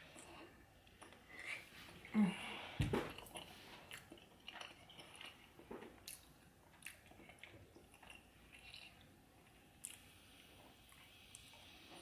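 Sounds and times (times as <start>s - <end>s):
close-up chewing: 3.0s - 12.0s.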